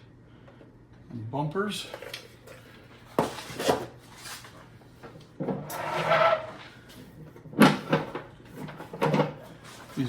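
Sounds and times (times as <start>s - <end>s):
cover rubbing scrape: 5.6s - 6.7s.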